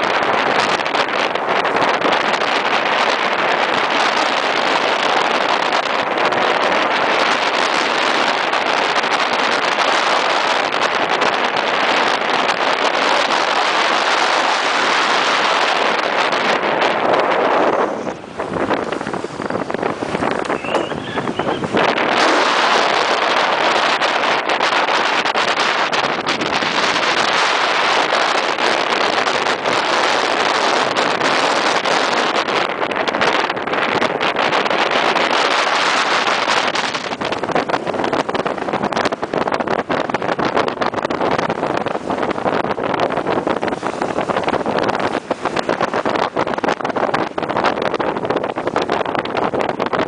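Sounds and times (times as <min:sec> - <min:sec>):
wind and water rushing: 0:00.0 - 0:50.0
wind buffeting microphone: 0:00.0 - 0:50.0.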